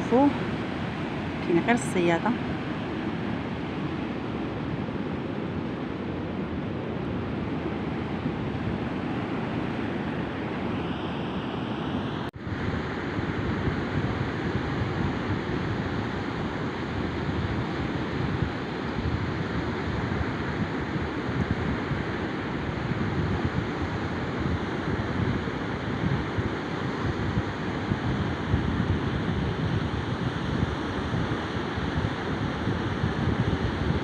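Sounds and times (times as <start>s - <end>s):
sea surf against rocks: 0.0s - 34.0s
wind buffeting microphone: 0.0s - 34.0s.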